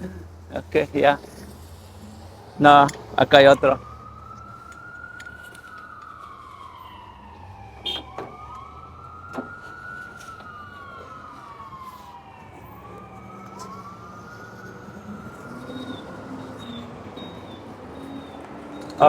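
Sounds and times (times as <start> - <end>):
emergency siren wailing: 0.3 - 19.0.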